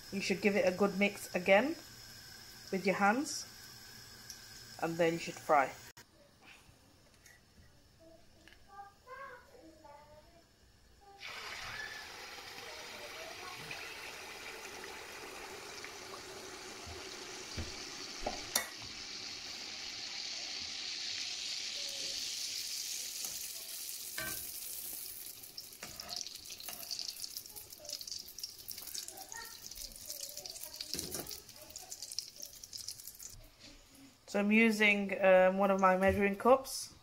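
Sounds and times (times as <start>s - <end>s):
batter sizzling in hot oil: 0.0s - 6.0s, 11.1s - 33.4s.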